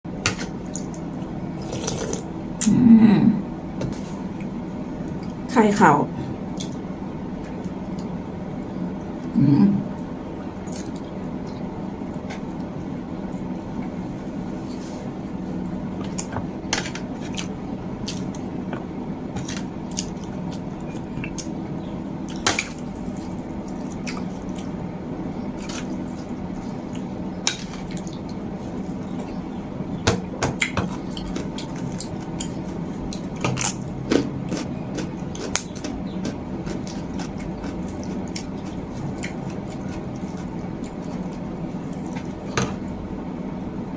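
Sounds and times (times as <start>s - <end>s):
low background hum: 0.0s - 43.9s
wet eating noises: 0.3s - 2.7s, 6.4s - 8.2s, 10.6s - 13.9s, 16.0s - 21.6s, 22.2s - 29.5s, 30.5s - 42.8s.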